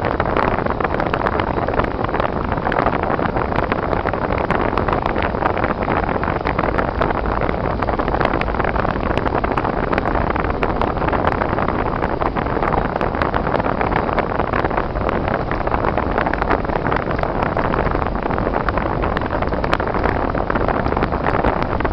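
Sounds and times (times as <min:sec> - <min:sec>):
car road and wind noise: 0:00.0 - 0:21.9.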